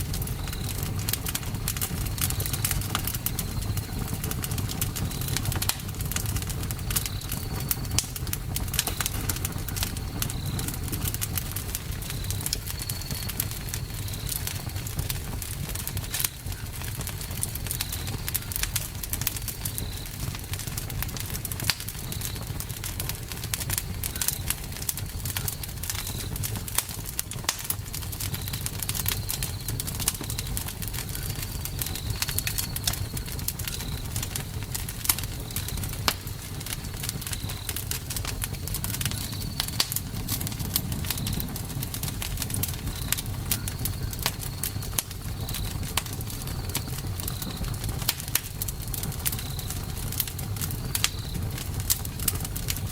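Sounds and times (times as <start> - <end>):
campfire crackling and popping: 0.0 - 52.9
low rumble of burning: 0.0 - 52.9.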